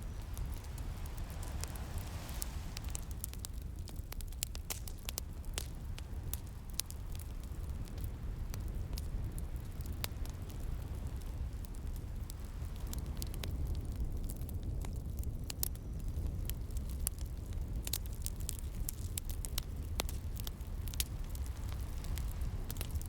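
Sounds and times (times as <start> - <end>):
ocean waves rumbling: 0.0 - 4.2
wood fire crackling and popping: 0.0 - 23.0.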